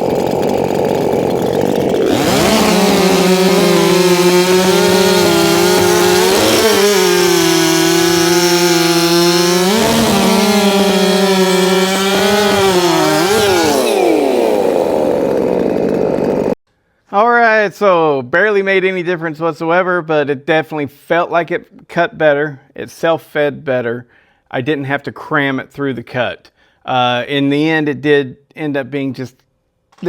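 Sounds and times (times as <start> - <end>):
chainsaw cutting through log: 0.0 - 16.6.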